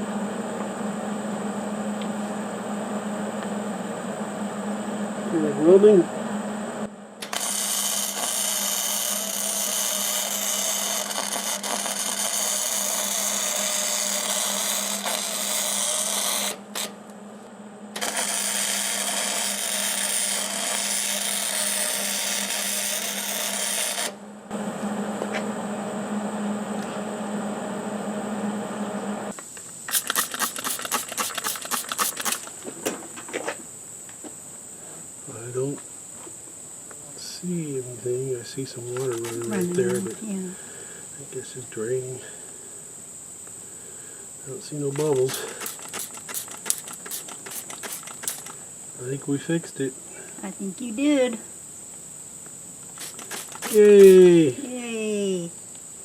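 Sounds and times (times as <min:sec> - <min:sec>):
steady hum: 0:00.0 - 0:56.0
welder arc crackling and sizzling: 0:06.6 - 0:17.0, 0:18.0 - 0:24.7, 0:28.6 - 0:32.7, 0:37.2 - 0:40.6, 0:44.4 - 0:49.9, 0:52.8 - 0:55.8
sharp clicks: 0:29.4 - 0:32.6, 0:38.9 - 0:40.1, 0:44.9 - 0:48.6, 0:52.9 - 0:54.2.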